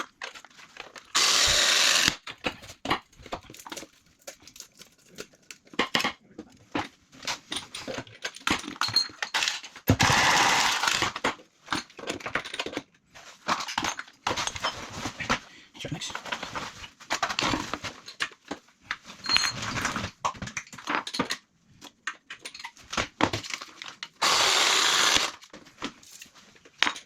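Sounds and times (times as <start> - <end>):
cordless power drill burst: 1.1 - 2.2, 9.9 - 11.2, 24.2 - 25.4
tools and pipe fittings clinking: 6.8 - 10.0, 19.2 - 19.8, 20.5 - 25.2.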